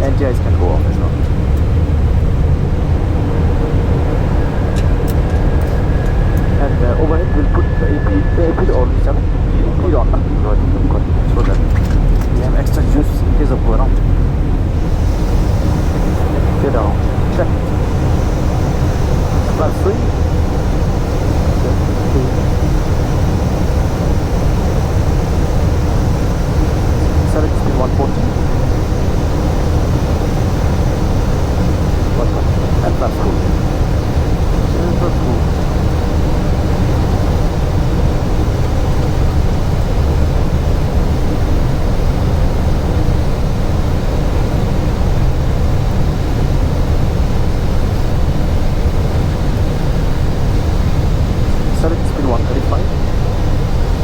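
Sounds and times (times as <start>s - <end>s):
airliner engine noise: 0.0s - 54.0s
faint steady hum: 0.0s - 54.0s
rushing air: 1.1s - 8.7s, 12.3s - 24.0s.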